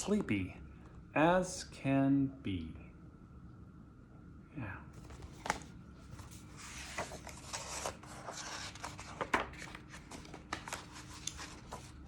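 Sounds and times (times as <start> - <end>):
pages rustling: 5.0 - 12.0.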